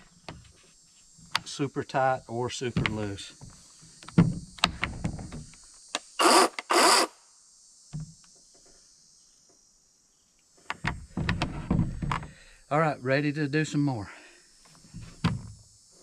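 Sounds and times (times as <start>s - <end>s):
loud rasping bursts: 6.2s - 7.1s.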